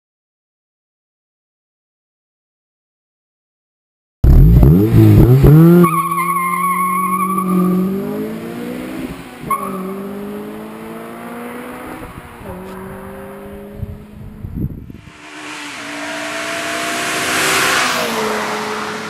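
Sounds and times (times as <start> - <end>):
tyre squeal: 5.8 - 7.9, 9.5 - 10.2
car engine revving past: 7.2 - 19.0.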